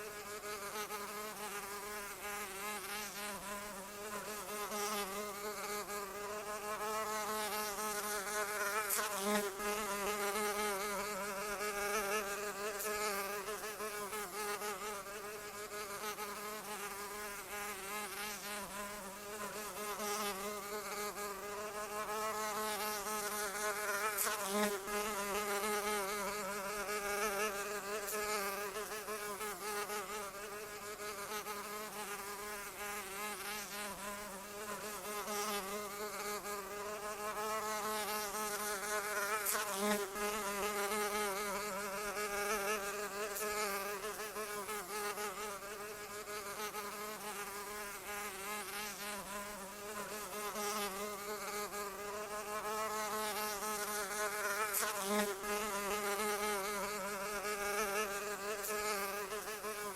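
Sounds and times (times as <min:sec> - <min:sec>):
flying insect buzzing: 0:00.0 - 0:59.9.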